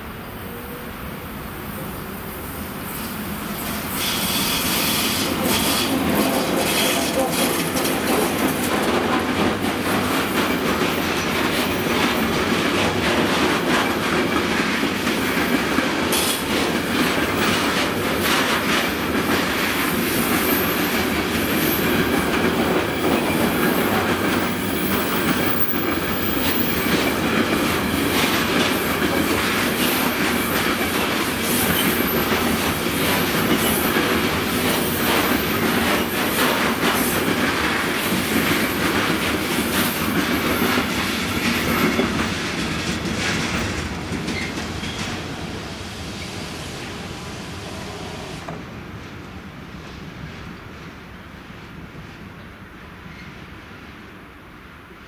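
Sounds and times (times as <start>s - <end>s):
freight train wheels rumbling: 0.0s - 55.0s
wheels clacking over rail joints: 4.0s - 45.5s.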